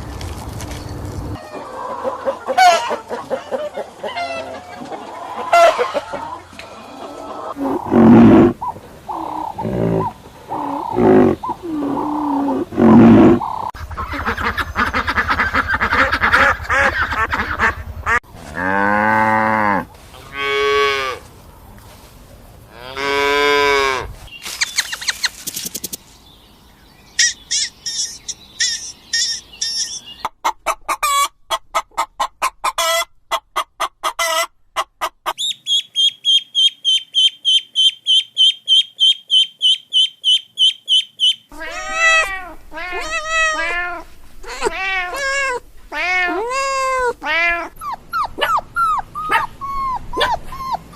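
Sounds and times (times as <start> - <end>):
honking fowl calls: 1.4 - 12.6, 13.3 - 18.2
high rapid chirping and peeping: 24.4 - 26.0.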